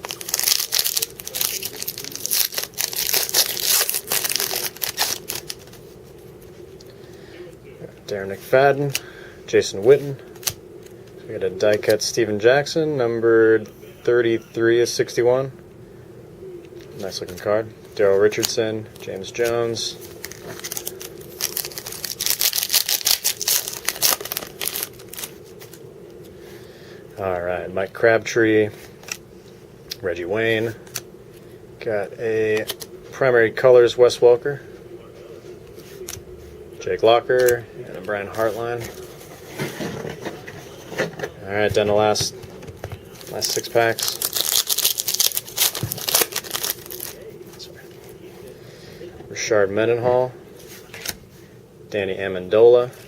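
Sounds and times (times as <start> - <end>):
plastic wrapper tearing and crinkling: 0.0 - 5.8, 18.3 - 25.8, 43.1 - 47.3.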